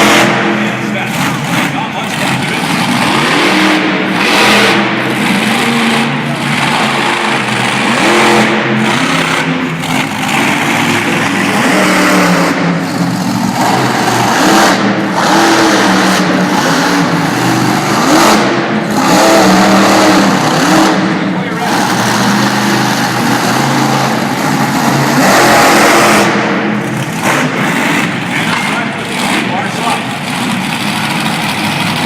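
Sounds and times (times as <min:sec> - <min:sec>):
monster truck engine revving: 0:00.0 - 0:32.0.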